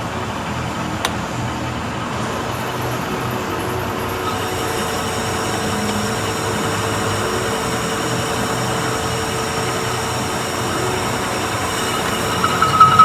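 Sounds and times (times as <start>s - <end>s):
steady whining tones: 0.0s - 13.0s
machine tool running: 2.6s - 13.0s.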